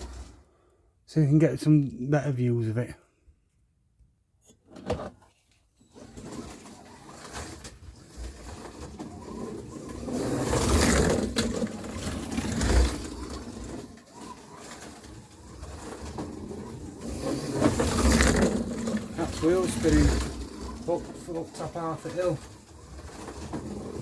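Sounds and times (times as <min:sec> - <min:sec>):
slot car motor whirring: 0:05.9 - 0:24.0.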